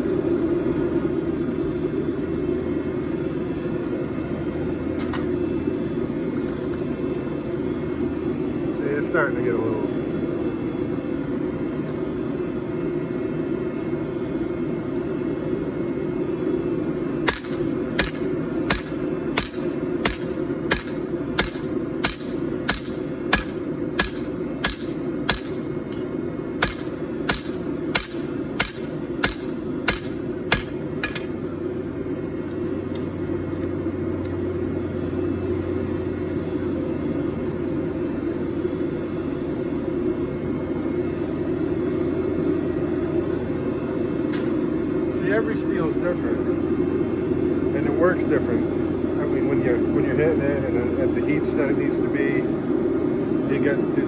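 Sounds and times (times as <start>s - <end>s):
hammer striking steel on anvil: 17.3s - 31.4s.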